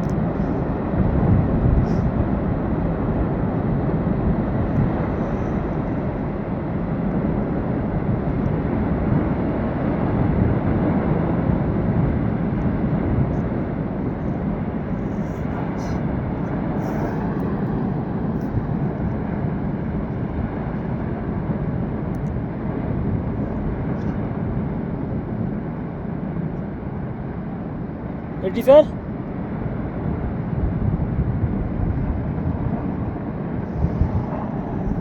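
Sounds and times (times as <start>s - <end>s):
avalanche rumbling roar: 0.0s - 35.0s.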